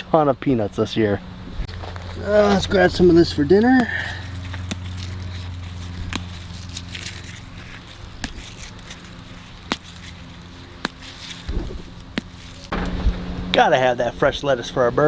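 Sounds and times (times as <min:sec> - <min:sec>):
low steady hum: 0:00.0 - 0:15.0
lettuce leaves snapping: 0:03.5 - 0:12.9.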